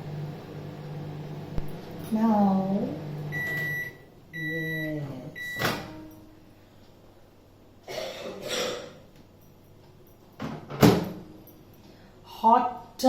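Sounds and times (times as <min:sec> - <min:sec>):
microwave beep: 0:03.0 - 0:06.1.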